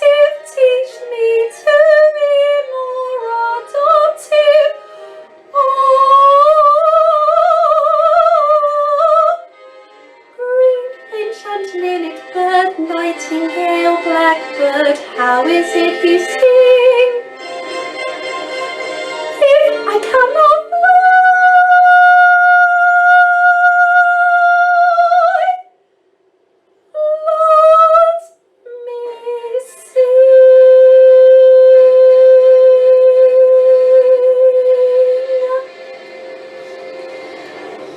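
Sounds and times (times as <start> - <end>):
backing music: 0.0 - 21.9, 33.3 - 37.9
soprano voice singing held notes: 10.3 - 17.3, 19.3 - 25.7, 26.9 - 35.8.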